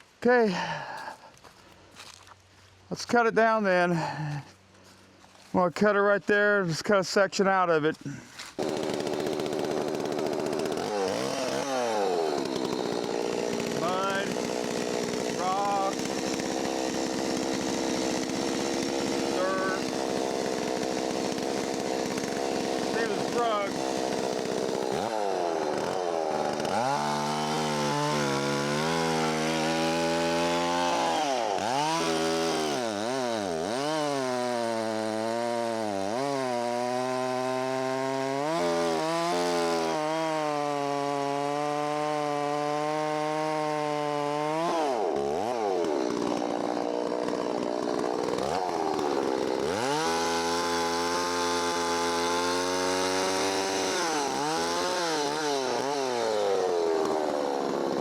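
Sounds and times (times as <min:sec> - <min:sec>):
chainsaw cutting through a log: 0:08.1 - 0:58.0.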